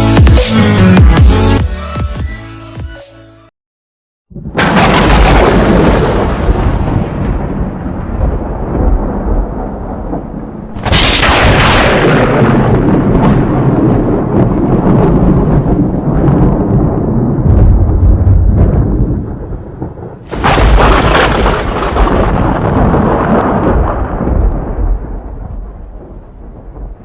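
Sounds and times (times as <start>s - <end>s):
thunder cracking and rumbling: 4.3s - 27.0s.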